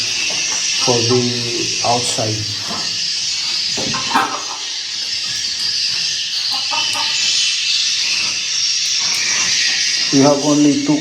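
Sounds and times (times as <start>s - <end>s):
recorded swiftlet twittering: 0.0s - 11.0s.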